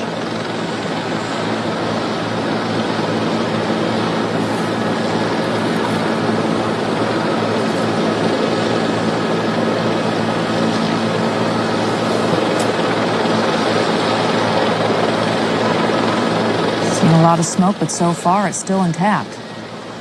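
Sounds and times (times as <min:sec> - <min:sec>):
aircraft drone: 0:00.0 - 0:20.0.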